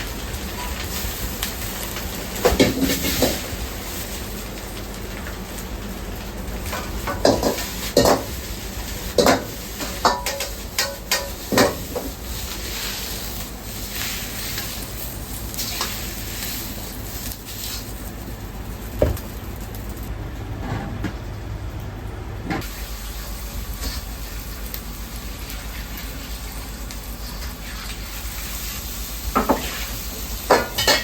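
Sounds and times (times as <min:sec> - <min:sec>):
food sizzling and frying: 0:00.0 - 0:20.5, 0:22.6 - 0:31.0
metal cookware clanking: 0:09.2 - 0:11.9, 0:30.5 - 0:31.0.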